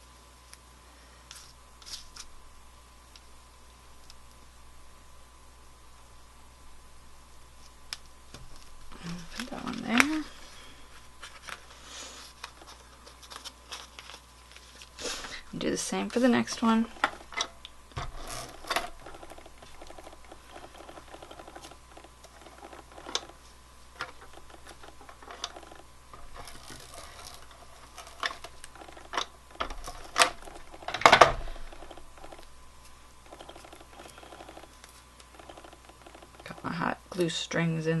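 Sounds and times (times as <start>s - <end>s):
fine rattling: 16.2s - 32.5s.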